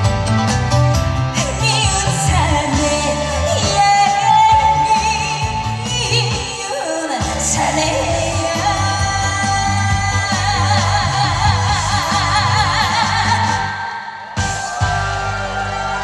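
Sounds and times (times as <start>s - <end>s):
band backing track: 0.0s - 16.0s
woman singing: 1.4s - 14.0s.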